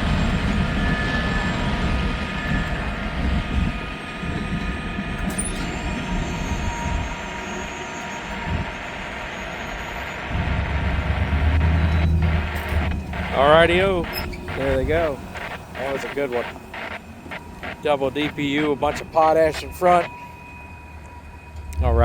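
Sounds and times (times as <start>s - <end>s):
freight train rumbling on rails: 0.0s - 15.6s
low engine drone: 5.8s - 22.0s.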